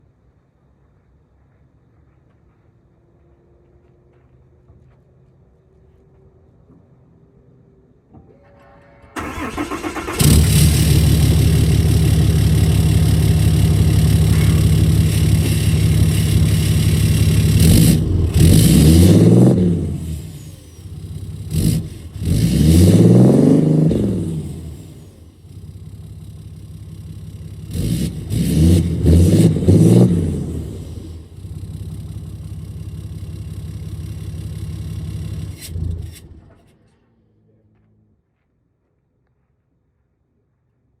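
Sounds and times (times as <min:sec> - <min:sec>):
diesel engine cranking and revving: 0:09.1 - 0:36.7.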